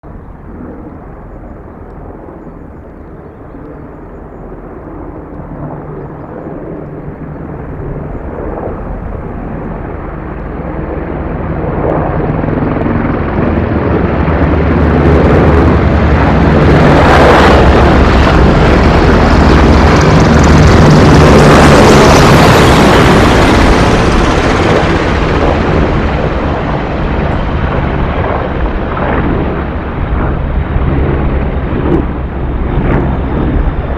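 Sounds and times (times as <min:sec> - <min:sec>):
helicopters flying low overhead: 0:00.0 - 0:33.9.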